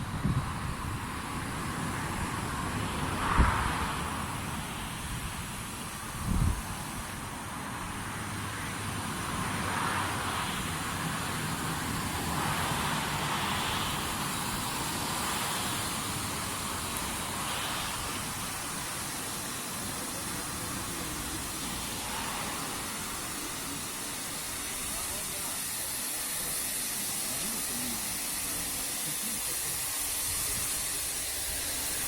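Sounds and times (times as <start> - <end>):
car wash water spray hiss: 0.0 - 32.0.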